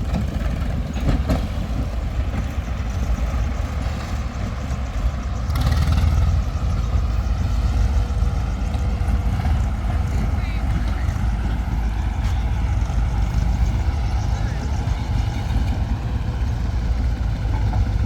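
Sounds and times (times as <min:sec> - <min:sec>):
heavy diesel machinery running: 0:00.0 - 0:18.0.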